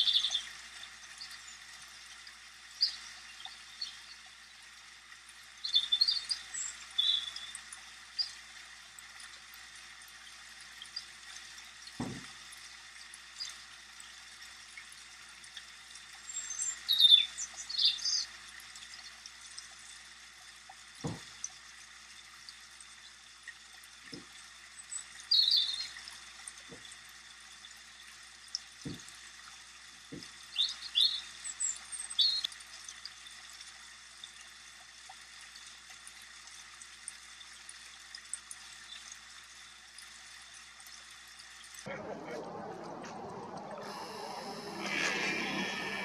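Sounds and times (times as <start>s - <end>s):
small birds chirping: 0.0s - 0.5s, 2.7s - 4.2s, 5.6s - 7.6s, 16.2s - 18.3s, 24.8s - 26.0s, 30.5s - 32.5s
steady hiss: 41.8s - 46.0s.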